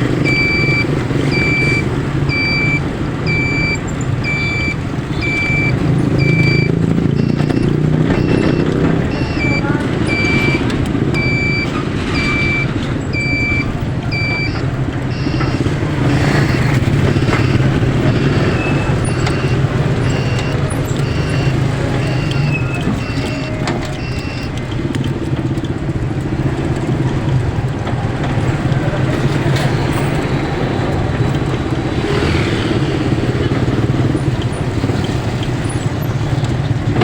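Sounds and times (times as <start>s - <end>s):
vehicle engine running: 0.0s - 37.0s
short electronic beeps: 0.1s - 24.7s.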